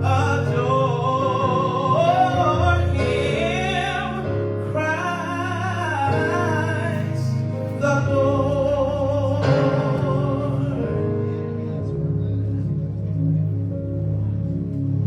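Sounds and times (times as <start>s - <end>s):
choir singing: 0.0s - 8.0s
held instrumental chords: 0.0s - 15.0s.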